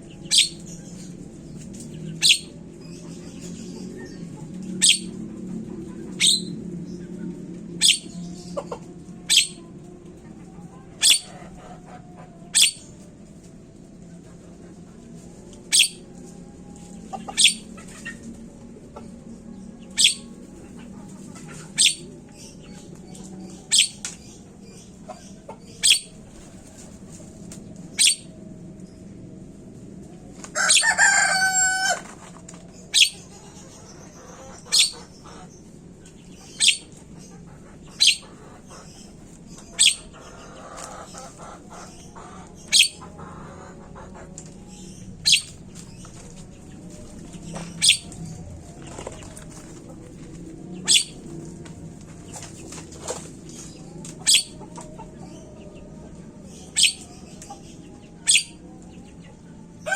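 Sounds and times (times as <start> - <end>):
birds calling: 0.0 - 29.3, 29.9 - 59.9.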